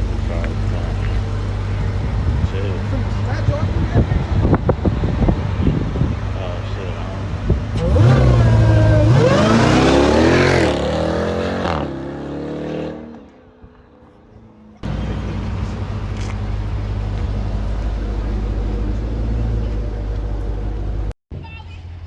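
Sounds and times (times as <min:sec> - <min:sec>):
car engine revving hard: 0:07.4 - 0:13.2.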